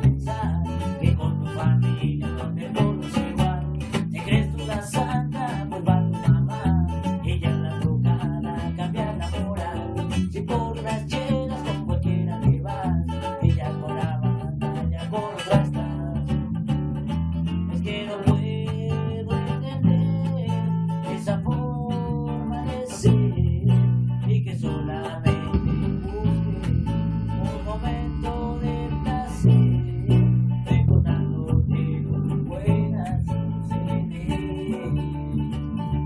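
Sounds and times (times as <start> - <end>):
bass guitar: 0.0 - 36.0
strummed guitar: 0.0 - 36.0
rock band playing: 25.4 - 30.0.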